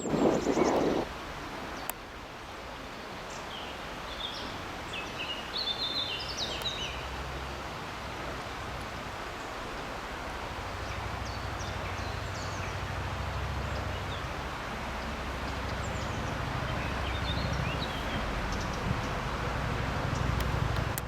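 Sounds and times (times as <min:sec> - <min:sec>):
small birds chirping: 0:15.0 - 0:19.2.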